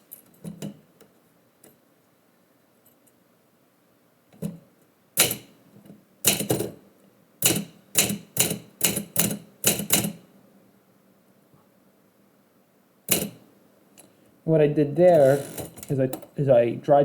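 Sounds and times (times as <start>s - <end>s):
typewriter keys striking: 5.2s - 5.5s, 6.3s - 6.7s, 7.4s - 10.2s, 13.1s - 13.4s.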